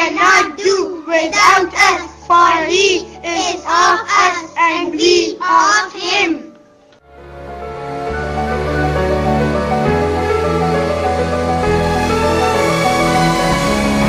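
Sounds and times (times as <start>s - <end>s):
child speaking: 0.0s - 6.5s
soft music: 0.0s - 14.0s.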